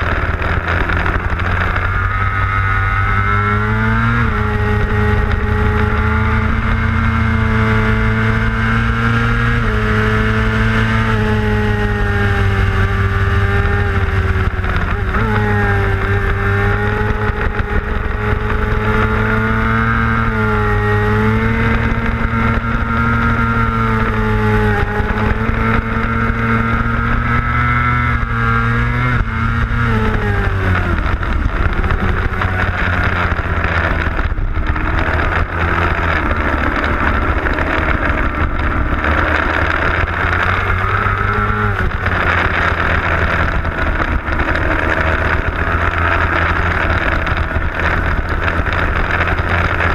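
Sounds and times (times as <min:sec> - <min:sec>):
racing motorcycle engine: 0:00.0 - 0:49.9.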